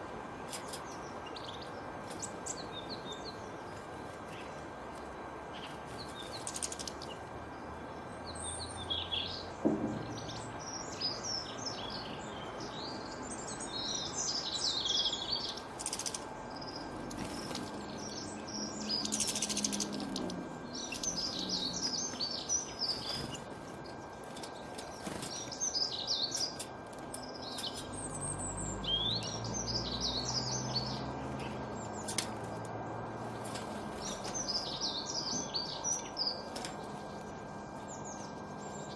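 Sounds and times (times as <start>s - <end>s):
small songbirds chirping: 0.0s - 38.9s
steady background hiss: 0.0s - 38.9s.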